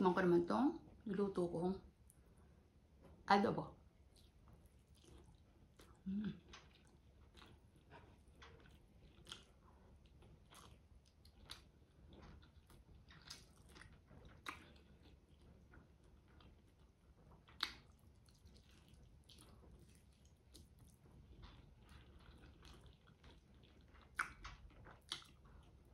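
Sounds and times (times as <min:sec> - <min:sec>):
close chewing mouth clicks: 0:04.1 - 0:25.9.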